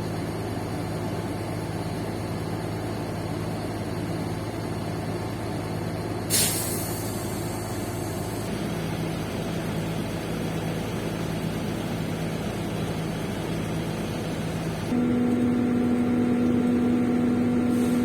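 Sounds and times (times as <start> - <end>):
diesel engine idling: 0.0 - 18.0
air brakes hissing: 6.3 - 8.5, 17.6 - 18.0.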